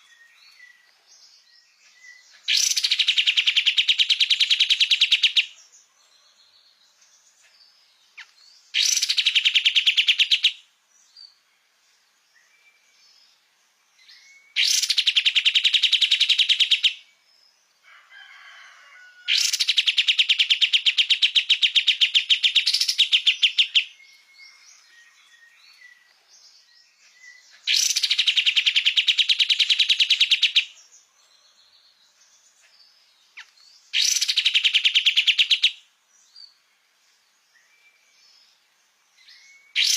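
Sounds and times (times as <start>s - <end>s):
bird singing fast trills: 0.0s - 5.6s, 8.0s - 11.4s, 14.0s - 17.2s, 19.3s - 31.0s, 32.3s - 36.6s, 39.2s - 39.9s
faint bird chirps: 0.0s - 39.9s.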